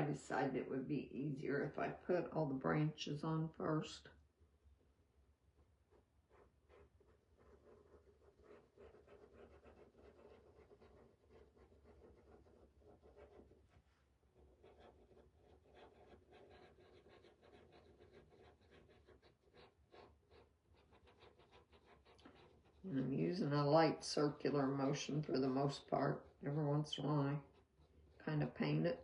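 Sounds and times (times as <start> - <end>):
brush scratching on stencil: 5.9 - 29.0.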